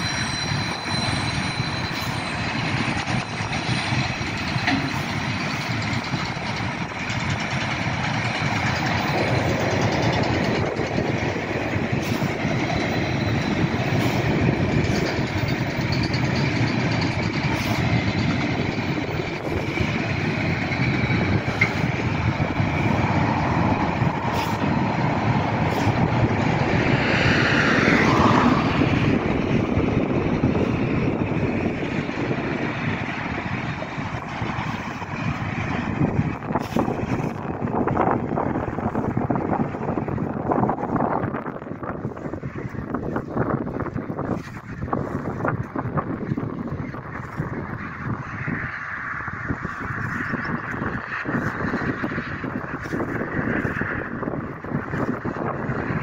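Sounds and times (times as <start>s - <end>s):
faint high squeal: 0.0s - 2.9s
train wagons rumbling over rails: 0.0s - 56.0s.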